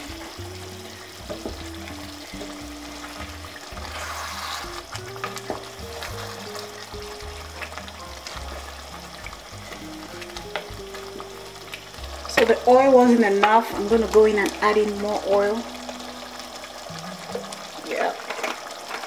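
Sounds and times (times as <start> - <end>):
stew sizzling in oil: 0.0 - 19.0
wooden spoon scraping pot: 2.4 - 6.4.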